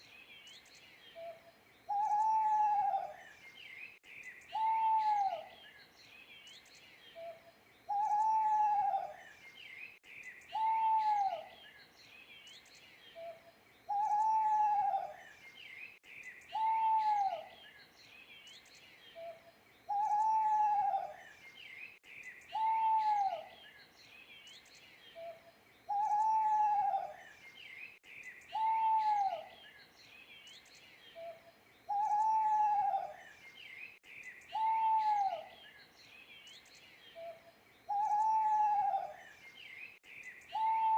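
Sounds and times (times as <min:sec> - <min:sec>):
small birds chirping faintly: 0:00.0 - 0:40.9
owl hooting: 0:01.2 - 0:03.2, 0:04.5 - 0:05.5, 0:07.9 - 0:09.2, 0:10.5 - 0:11.5, 0:13.2 - 0:15.2, 0:16.5 - 0:17.5, 0:19.2 - 0:21.2, 0:22.5 - 0:23.5, 0:25.2 - 0:27.2, 0:28.5 - 0:29.5, 0:31.2 - 0:33.2, 0:34.5 - 0:35.6, 0:37.2 - 0:39.2, 0:40.5 - 0:40.9.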